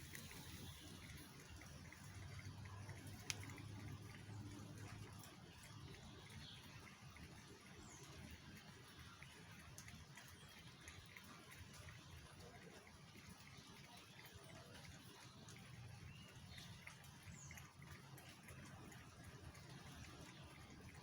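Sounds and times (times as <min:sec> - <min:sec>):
light ticks: 0:02.9 - 0:05.0.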